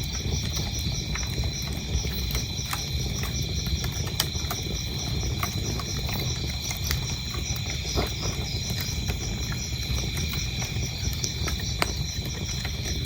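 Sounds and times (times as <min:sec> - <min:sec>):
crickets chirping: 0:00.0 - 0:13.0
wood fire crackling: 0:00.0 - 0:13.0.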